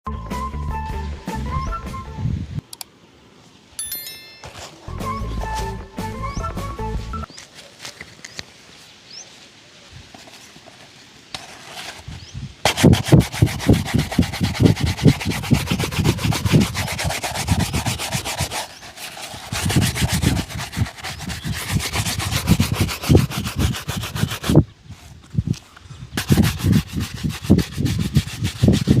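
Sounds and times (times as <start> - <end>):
brush rubbing on shoe: 10.1 - 25.2, 26.2 - 29.0.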